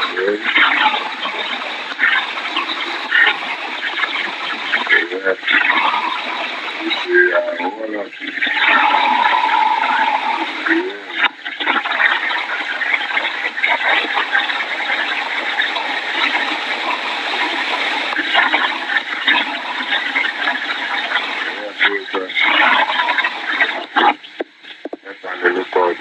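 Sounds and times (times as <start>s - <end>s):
thin steady tone: 6.8s - 11.3s.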